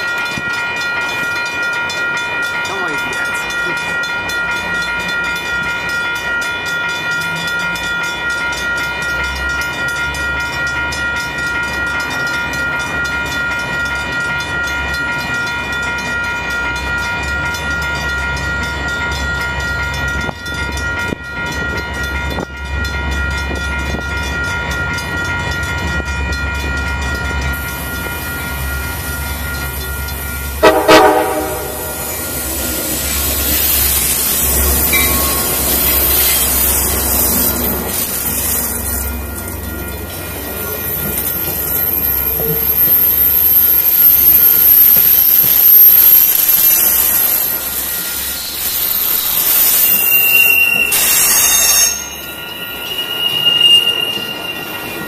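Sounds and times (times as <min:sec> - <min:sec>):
crossing warning bell ringing: 0:00.0 - 0:55.0
diesel locomotive rumble: 0:01.9 - 0:55.0
loud train horn blast: 0:30.6 - 0:32.2.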